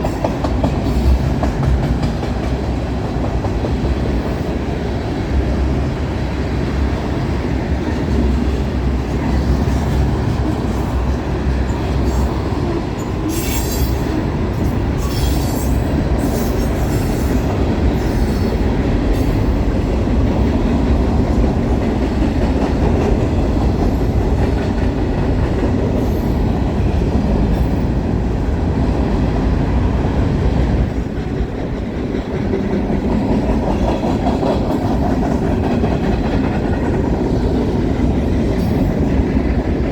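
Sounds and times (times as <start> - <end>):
train wheels rumbling on rail: 0.0 - 39.9
high-pitched wheel squeal: 13.3 - 14.0, 15.0 - 17.1.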